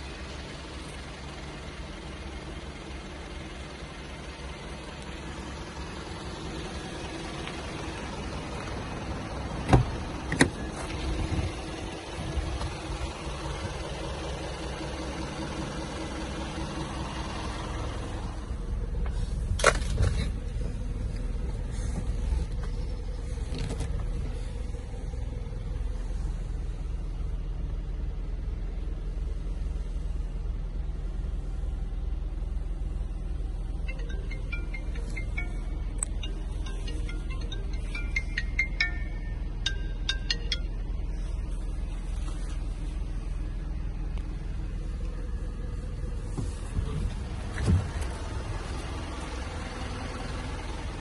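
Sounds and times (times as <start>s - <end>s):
diesel engine idling: 0.0s - 51.0s
sharp engine knocks: 9.6s - 10.6s.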